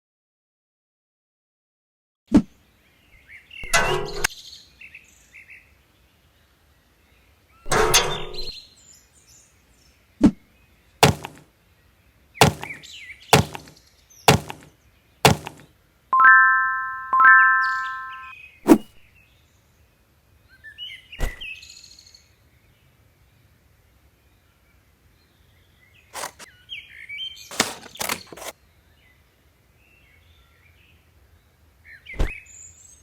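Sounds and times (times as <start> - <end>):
sharp knocks: 11.0 - 11.4, 12.4 - 12.8, 13.4 - 14.7, 15.3 - 15.7
ringing chime: 16.2 - 18.3
rough noises: 26.2 - 26.5, 27.5 - 28.5.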